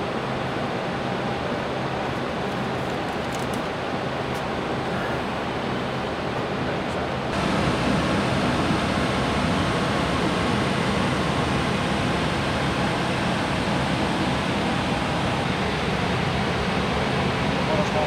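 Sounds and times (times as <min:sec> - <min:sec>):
airliner cockpit air rushing: 0:07.3 - 0:18.0.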